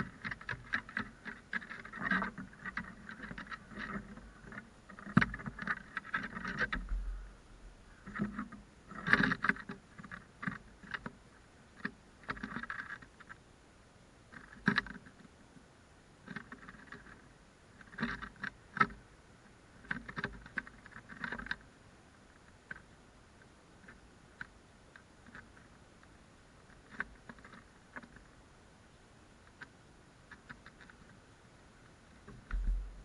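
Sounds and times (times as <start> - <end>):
light taps and knocks: 32.2 - 33.0.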